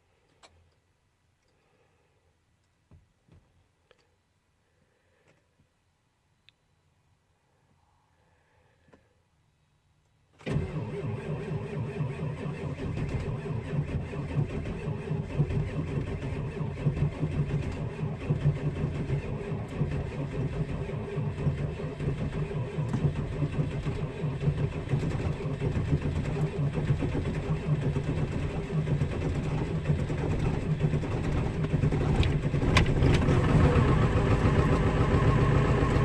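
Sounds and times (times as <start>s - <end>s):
faint click: 0.2s - 1.7s, 3.8s - 4.2s, 6.4s - 6.7s
diesel engine starting and idling: 10.4s - 36.0s.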